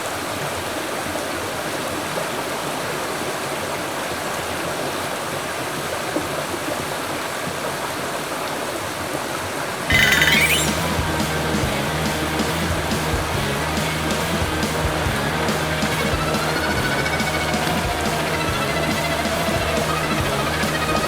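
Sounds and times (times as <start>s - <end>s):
mountain stream flowing: 0.0s - 10.7s
background music: 9.9s - 21.0s.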